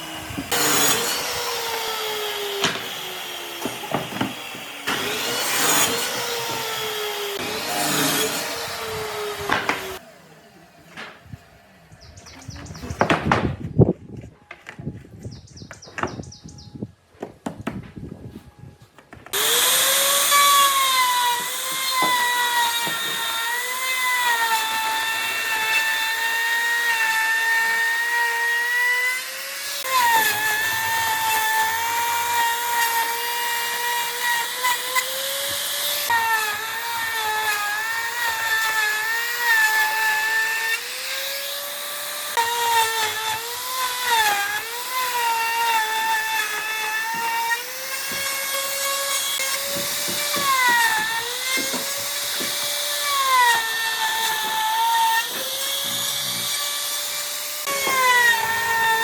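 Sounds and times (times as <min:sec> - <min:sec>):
power tool motor whine: 0:00.0 - 0:10.6, 0:19.3 - 0:59.0.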